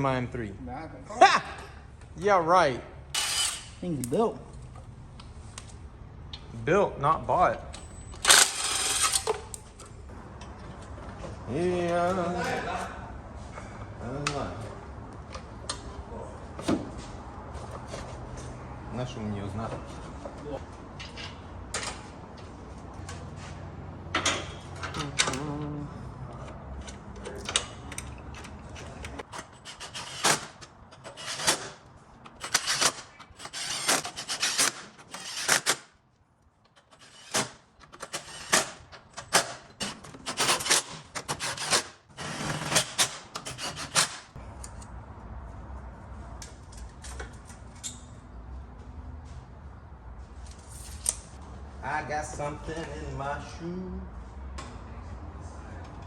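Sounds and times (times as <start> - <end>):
tool rasping or scraping: 29.2 - 35.9, 36.8 - 44.4.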